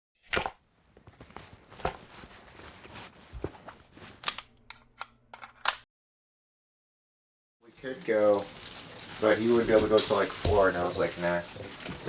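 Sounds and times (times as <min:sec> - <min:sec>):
handling rustling: 0:00.9 - 0:04.5, 0:08.0 - 0:12.0.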